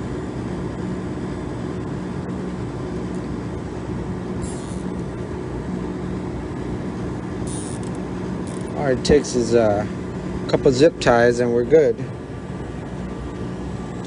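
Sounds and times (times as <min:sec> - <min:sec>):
ice machine humming: 0:00.0 - 0:14.0
zip tie pulled tight: 0:07.5 - 0:08.7.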